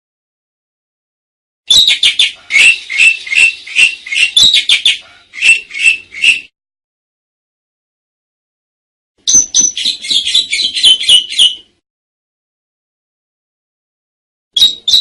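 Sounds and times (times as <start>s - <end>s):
starling chattering song: 1.7s - 6.5s, 9.3s - 11.7s.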